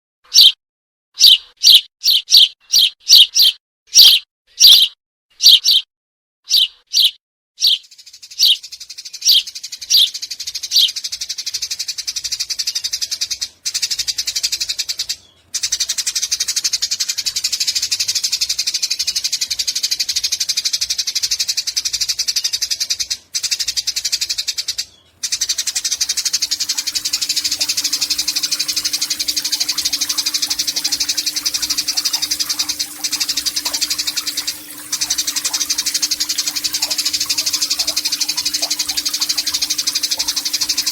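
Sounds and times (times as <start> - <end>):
sparrow chirps: 0.3 - 0.6, 1.2 - 5.9, 6.5 - 40.9
fast rattling bird chatter: 1.2 - 5.8, 6.5 - 14.6, 21.6 - 40.9
low steady hum: 25.2 - 40.9.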